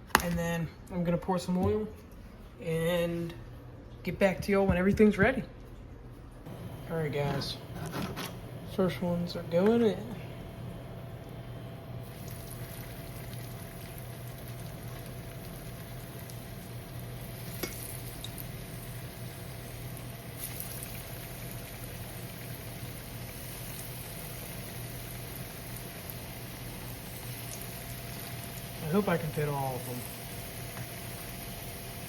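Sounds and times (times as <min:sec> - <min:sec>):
food deep-frying in oil: 0:12.0 - 0:32.0.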